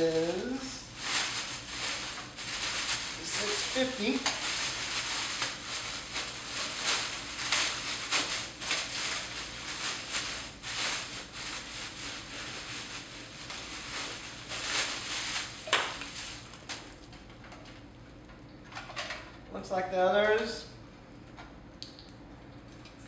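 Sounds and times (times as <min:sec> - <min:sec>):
packaging rustling and crinkling: 0:00.8 - 0:17.8.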